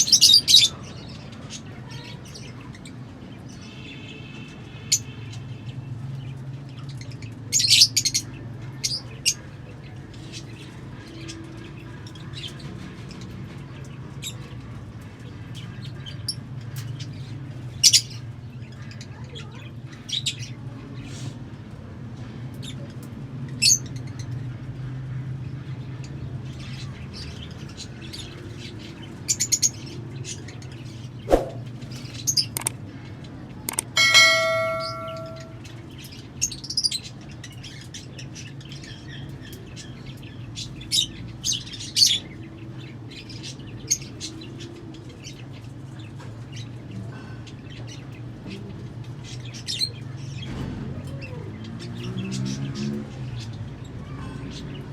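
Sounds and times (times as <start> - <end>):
birds chirping: 26.0 - 50.4
sharp knock: 31.3 - 31.7
bell-like ring: 33.8 - 35.6.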